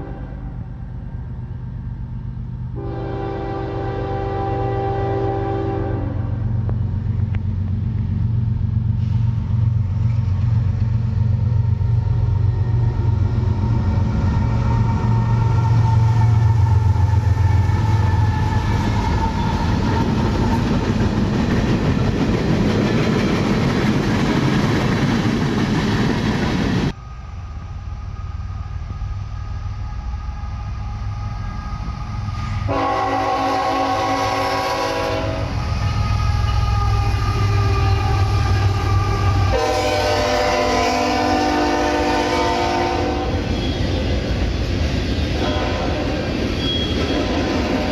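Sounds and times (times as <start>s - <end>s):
locomotive air horn blast: 0.0s - 0.7s, 2.8s - 6.5s, 31.4s - 44.0s, 45.4s - 47.9s
diesel train engine drone: 0.0s - 47.9s
rail noise: 0.0s - 47.9s.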